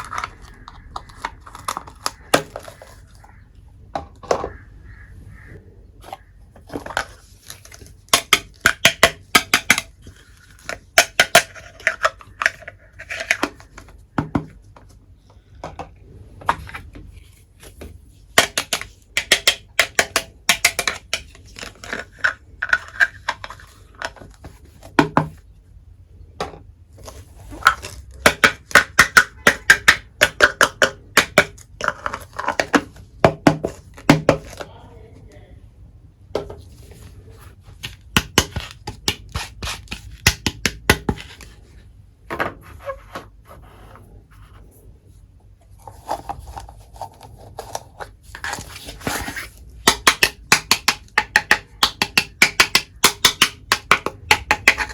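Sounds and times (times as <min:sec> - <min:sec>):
toy kitchenware clicking and clinking: 0:06.6 - 0:13.9, 0:18.4 - 0:24.3, 0:27.5 - 0:33.0, 0:49.8 - 0:54.9.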